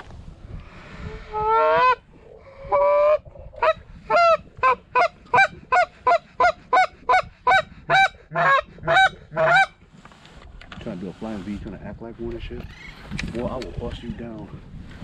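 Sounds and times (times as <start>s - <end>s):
goose honking: 3.6s - 9.7s.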